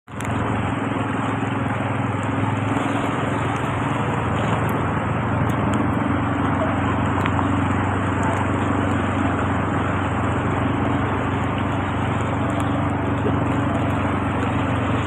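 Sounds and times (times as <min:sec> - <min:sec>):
road noise: 0:00.0 - 0:15.0
vehicle engine humming: 0:00.0 - 0:15.0.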